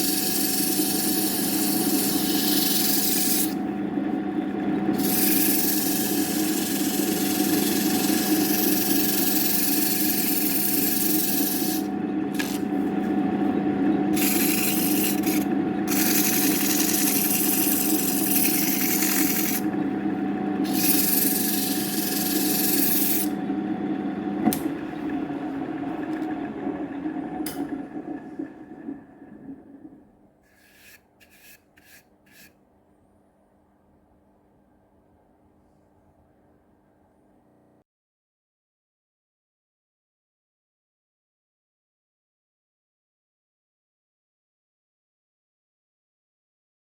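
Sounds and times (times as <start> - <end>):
router bit cutting wood hiss: 0.0 - 3.6, 5.0 - 12.7, 14.2 - 19.7, 20.7 - 23.4
spindle motor humming: 0.0 - 32.5.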